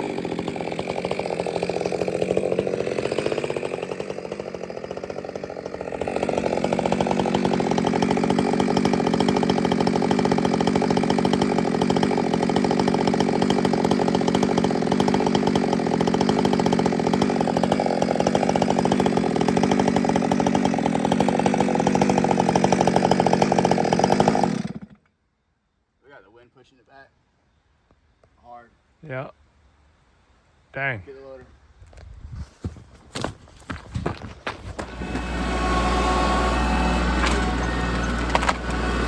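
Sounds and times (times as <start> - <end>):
chainsaw engine revving: 0.0 - 25.0, 34.7 - 39.0.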